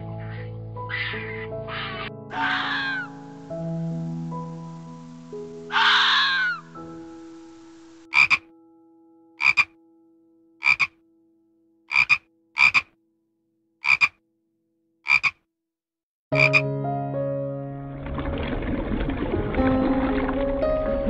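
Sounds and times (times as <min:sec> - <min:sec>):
background music: 0:00.0 - 0:10.9, 0:16.3 - 0:21.0
frog croaking: 0:00.3 - 0:03.3, 0:05.7 - 0:06.8, 0:07.7 - 0:08.5, 0:09.4 - 0:09.8, 0:10.6 - 0:11.0, 0:11.9 - 0:13.0, 0:13.8 - 0:14.2, 0:15.0 - 0:15.4, 0:16.3 - 0:16.7.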